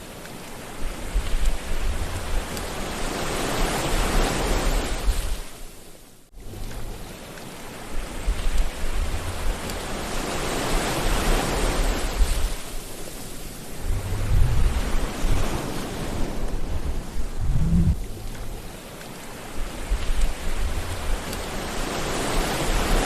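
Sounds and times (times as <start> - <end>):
sea waves washing in: 0.0 - 5.9, 6.5 - 23.0.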